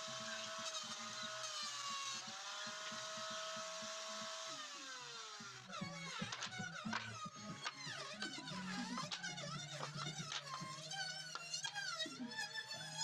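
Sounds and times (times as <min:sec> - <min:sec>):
music: 0:00.0 - 0:13.0
power tool motor whine: 0:00.0 - 0:13.0.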